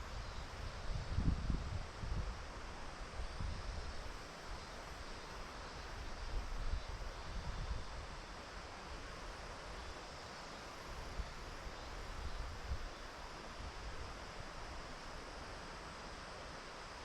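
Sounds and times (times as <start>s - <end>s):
outdoor hiss: 0.0s - 17.0s
wind buffeting microphone: 0.8s - 2.4s.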